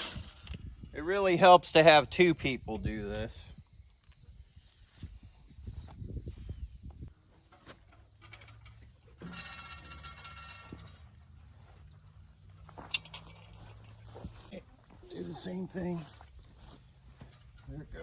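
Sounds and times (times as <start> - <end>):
insects chirping: 0.0 - 18.0
rustling and knocking on metal bars: 6.9 - 14.4.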